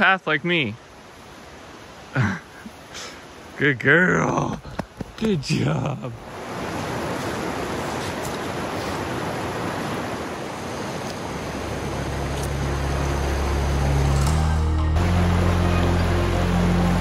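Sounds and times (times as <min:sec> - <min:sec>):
river water rushing: 0:00.0 - 0:17.0
background music low notes: 0:11.9 - 0:17.0.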